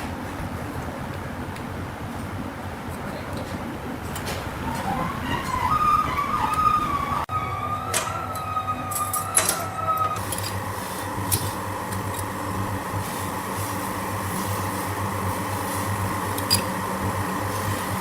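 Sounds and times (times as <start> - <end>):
machine humming: 3.8 - 18.0.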